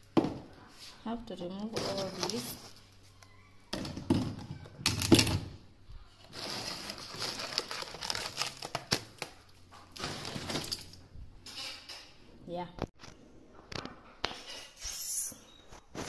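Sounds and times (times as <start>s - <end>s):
plastic packaging crinkling: 6.3s - 11.0s.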